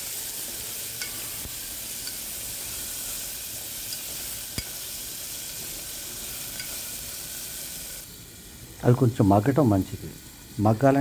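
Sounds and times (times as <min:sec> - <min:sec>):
vegetables sizzling in hot oil: 0:00.0 - 0:11.0
metal spoon clicking on pot: 0:02.0 - 0:02.2, 0:06.5 - 0:06.8.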